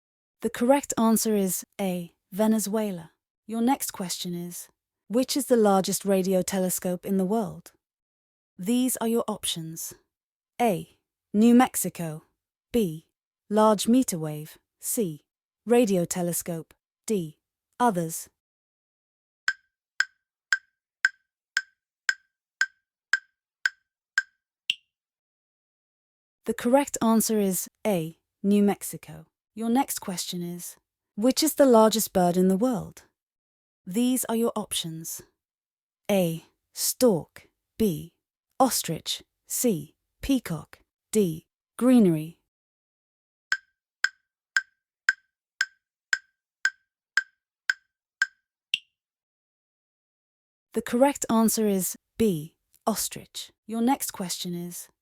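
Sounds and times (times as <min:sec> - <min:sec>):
wood-block-like timer ticks: 0:19.5 - 0:24.9, 0:43.5 - 0:48.9.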